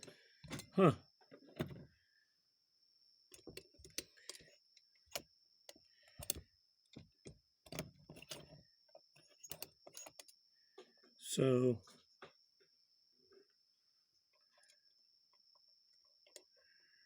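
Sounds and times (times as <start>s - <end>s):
clicks of small metal parts: 3.3s - 7.0s, 9.1s - 10.4s.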